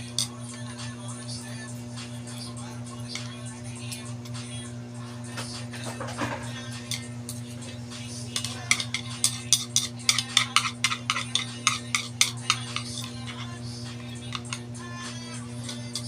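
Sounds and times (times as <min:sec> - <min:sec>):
utensil clinking against bowl: 0:00.0 - 0:00.4, 0:05.4 - 0:16.0
steady low hum: 0:00.0 - 0:16.0.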